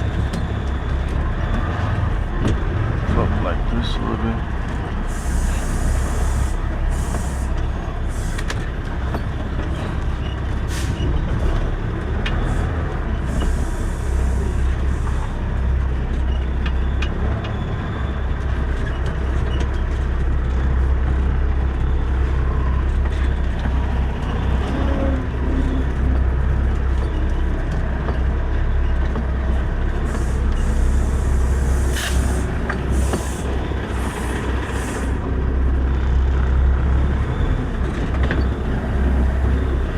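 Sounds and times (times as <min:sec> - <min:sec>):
diesel truck engine rumbling: 0:00.0 - 0:39.9
air brake hisses: 0:05.1 - 0:08.5, 0:10.7 - 0:11.0, 0:30.0 - 0:35.2.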